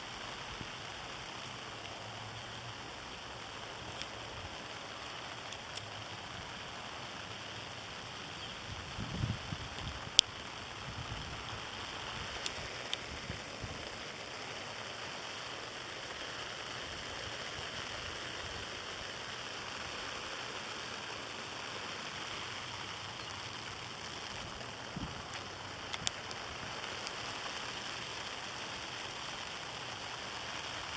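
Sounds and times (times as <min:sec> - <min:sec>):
sharp ticks: 0:05.4 - 0:06.0, 0:12.3 - 0:13.1.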